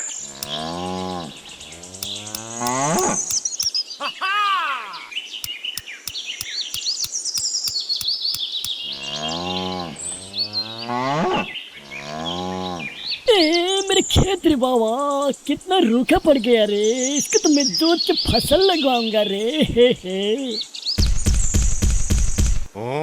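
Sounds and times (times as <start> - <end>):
evenly spaced clicks: 0.0 - 0.6, 2.0 - 3.7, 5.8 - 8.8
birds chirping: 0.0 - 10.6, 12.6 - 21.0.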